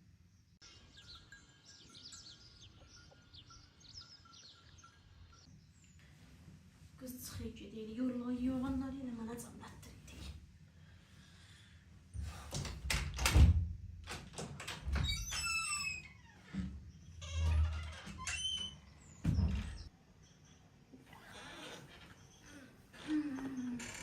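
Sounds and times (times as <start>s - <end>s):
knocks and thumps: 19.2s - 19.9s.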